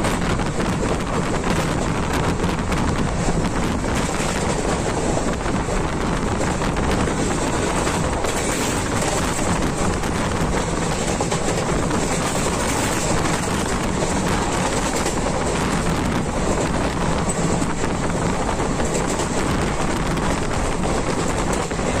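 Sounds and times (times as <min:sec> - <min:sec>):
rushing air: 0:00.0 - 0:22.0
train wheels rumbling on rails: 0:00.0 - 0:22.0.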